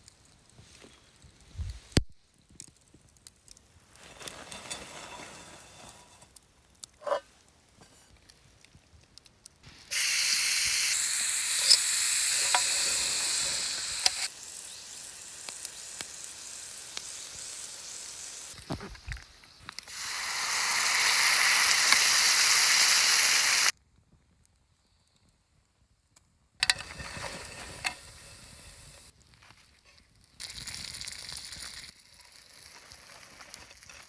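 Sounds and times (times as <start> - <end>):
food sizzling in a skillet: 9.7 - 23.7, 26.6 - 29.1, 30.4 - 34.0.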